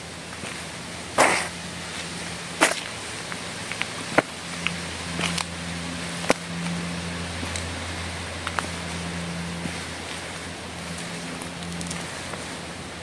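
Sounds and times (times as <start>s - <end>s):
low hum: 0.0s - 13.0s
footsteps crunching on forest floor: 0.3s - 12.6s
twigs snapping underfoot: 2.6s - 5.6s, 6.2s - 6.8s, 7.4s - 7.7s, 8.4s - 8.7s, 10.9s - 12.4s.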